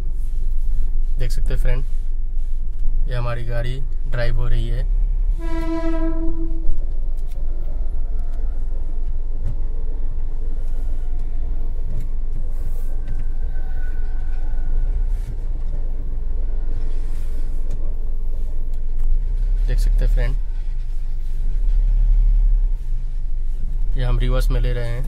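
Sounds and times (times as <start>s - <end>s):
car engine running at low revs: 0.0s - 25.0s
vehicle horn: 5.3s - 6.8s.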